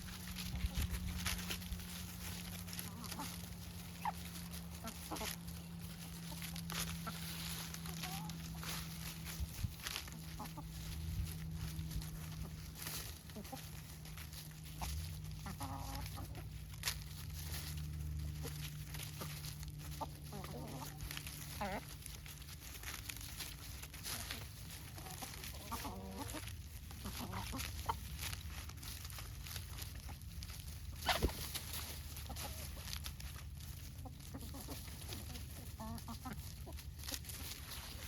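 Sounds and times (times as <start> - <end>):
steady low hum: 0.0 - 15.4
steady low rumble: 0.0 - 25.8
chickens clucking: 0.0 - 38.0.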